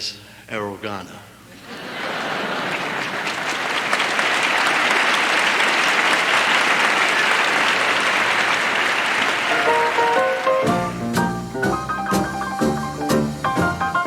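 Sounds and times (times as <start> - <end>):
audience applauding: 1.6 - 11.0.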